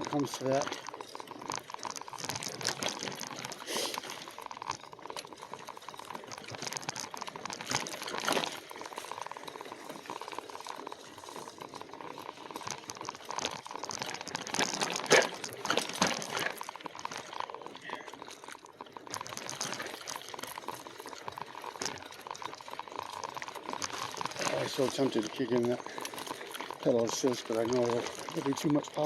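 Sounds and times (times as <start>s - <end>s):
bike rattling: 0.0s - 29.0s
tyres crackling over dirt: 0.0s - 29.0s
bike knocking over bumps: 12.7s - 17.9s.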